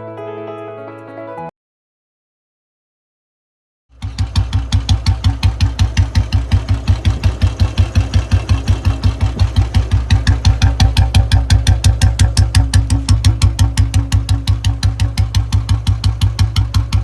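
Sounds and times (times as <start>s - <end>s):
motorcycle engine idling: 3.9s - 17.0s.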